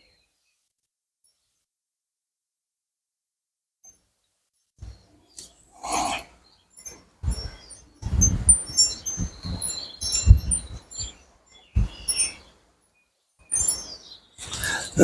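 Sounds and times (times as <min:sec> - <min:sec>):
birds chirping: 0:04.8 - 0:12.7, 0:13.4 - 0:15.0
low rumbles on microphone: 0:07.2 - 0:10.9.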